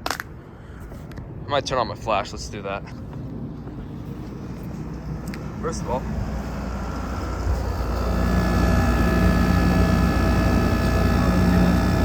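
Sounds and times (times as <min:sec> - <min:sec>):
air conditioner humming: 0:03.8 - 0:12.0.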